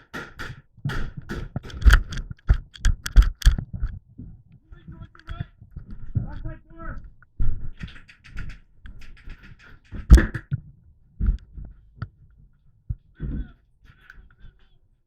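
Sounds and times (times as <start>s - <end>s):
sharp knock: 0.0s - 2.0s, 7.8s - 10.5s
dull thumps: 0.0s - 10.6s.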